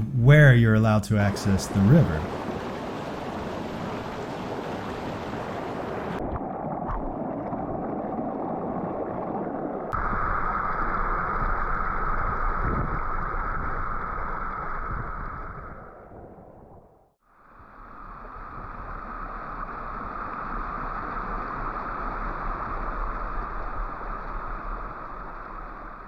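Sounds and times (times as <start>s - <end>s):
river water rushing: 1.3s - 6.2s.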